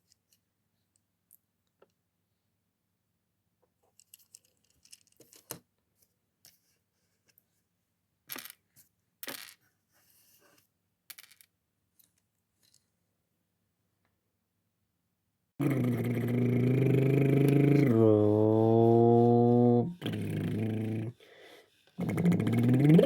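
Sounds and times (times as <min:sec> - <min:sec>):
plastic pieces clicking and rattling: 0:04.0 - 0:05.6.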